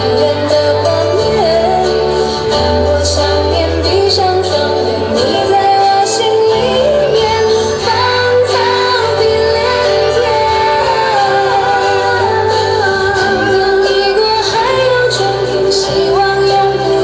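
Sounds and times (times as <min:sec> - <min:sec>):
chorus singing with accompaniment: 0:04.9 - 0:17.0.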